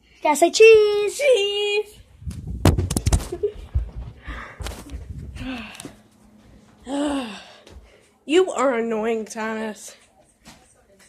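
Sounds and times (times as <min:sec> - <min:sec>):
breathy gasps: 0:06.9 - 0:08.0.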